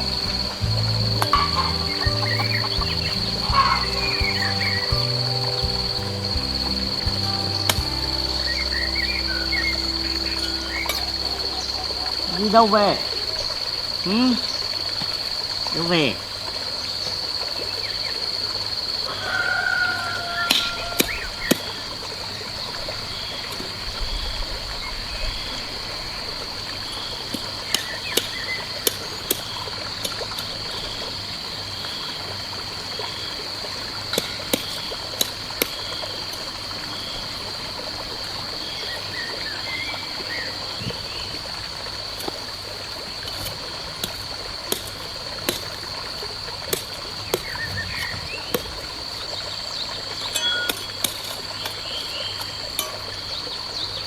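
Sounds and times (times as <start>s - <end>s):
pulsing chirp: 0.0s - 13.6s
high insect drone: 0.0s - 15.7s
trickle of running water: 0.0s - 54.0s.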